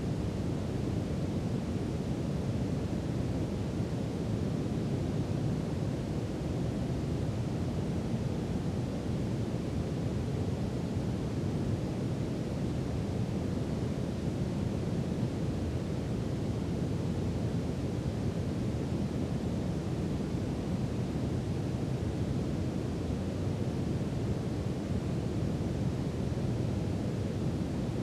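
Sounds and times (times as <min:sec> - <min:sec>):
brown noise hiss: 0:00.0 - 0:28.0.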